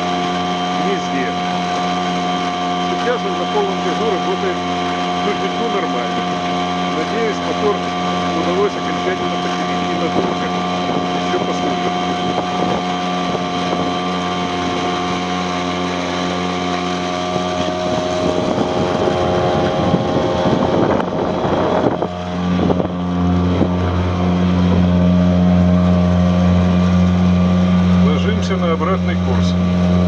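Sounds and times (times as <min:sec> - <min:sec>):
outboard motor at full throttle: 0:00.0 - 0:30.0
wind on microphone: 0:10.2 - 0:27.5.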